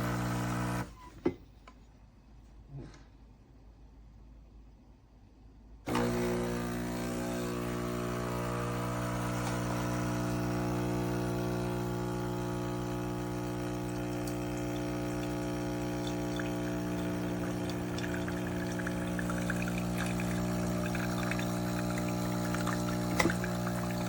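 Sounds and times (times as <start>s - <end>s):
espresso machine pump humming: 0.0s - 0.9s, 5.9s - 24.0s
coffee pouring: 9.2s - 24.0s.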